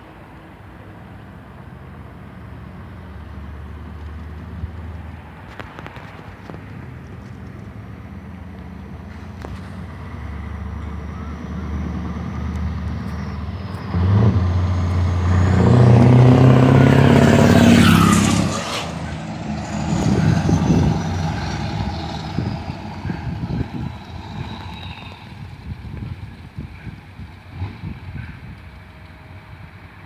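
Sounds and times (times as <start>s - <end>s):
truck engine driving past: 6.6s - 30.0s.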